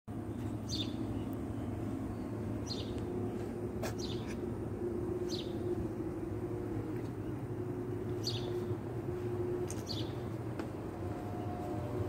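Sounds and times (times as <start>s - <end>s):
steady low hum: 0.1s - 12.0s
bird chirping: 0.3s - 4.4s, 5.2s - 5.7s, 7.0s - 8.8s, 9.7s - 10.3s.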